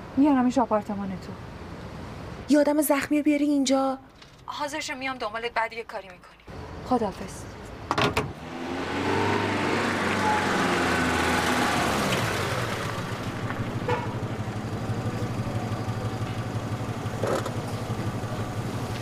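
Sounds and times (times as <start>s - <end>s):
car engine idling: 8.7s - 19.0s.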